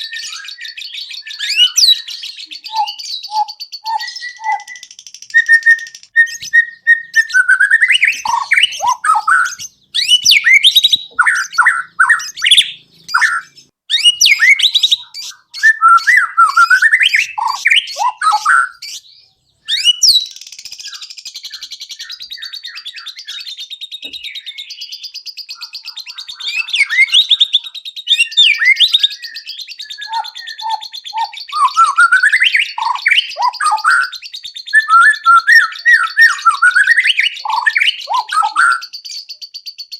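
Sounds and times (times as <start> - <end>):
songbird whistled song: 0.0 - 39.9
buzzy bird chattering: 1.5 - 19.0, 29.9 - 33.9.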